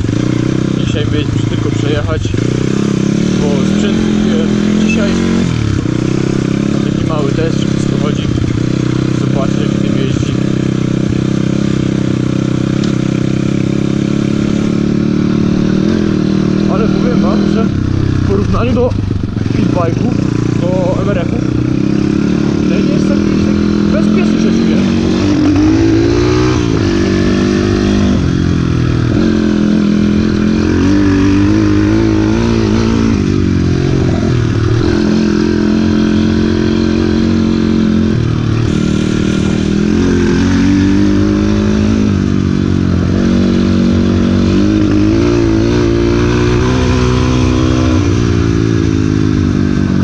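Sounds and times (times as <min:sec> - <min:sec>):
motorbike engine revving: 0:00.0 - 0:50.0.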